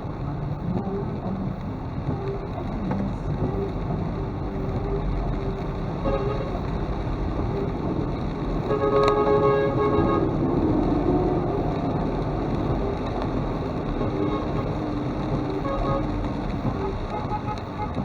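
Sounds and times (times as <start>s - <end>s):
traffic noise: 0.0s - 18.0s
vehicle horn: 8.7s - 10.5s, 15.5s - 16.1s.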